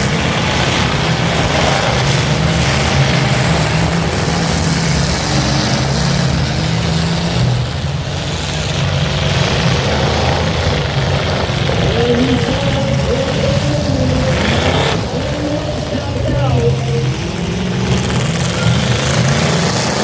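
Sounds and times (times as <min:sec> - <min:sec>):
car engines droning: 0:00.0 - 0:20.0.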